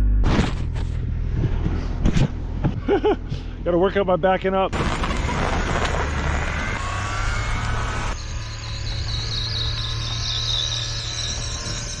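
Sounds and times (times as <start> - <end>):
driving noise: 0.0 - 12.0
small truck engine humming: 0.8 - 12.0
high-pitched whine: 4.7 - 12.0.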